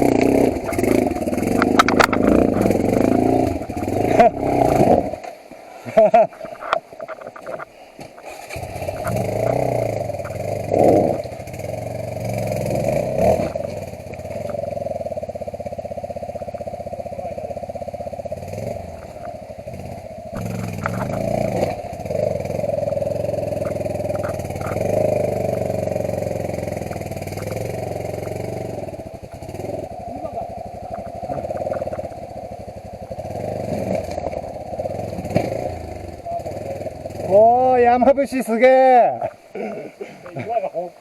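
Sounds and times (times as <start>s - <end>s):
motorcycle engine revving: 0.0s - 38.2s
small clicks and knocks: 1.5s - 3.2s, 6.4s - 8.3s, 20.4s - 21.7s.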